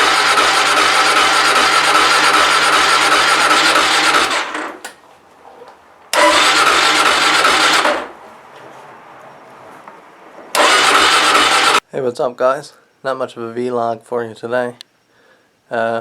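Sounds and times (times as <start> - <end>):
electric starter cranking engine: 0.0 - 4.9, 6.1 - 8.2, 10.5 - 11.8.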